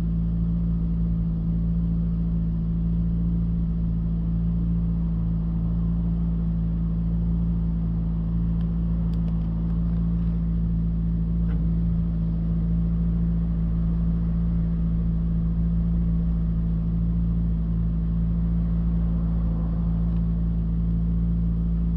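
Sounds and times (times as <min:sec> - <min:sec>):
car engine idling: 0:00.0 - 0:21.9.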